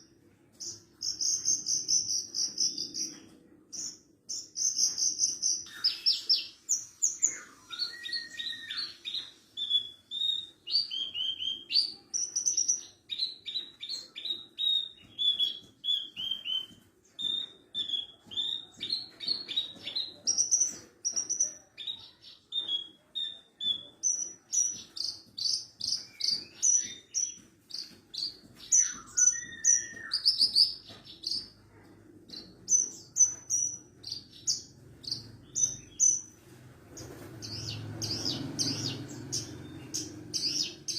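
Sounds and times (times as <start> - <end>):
bird singing chirps and trills: 0.0 - 31.6, 37.4 - 40.9.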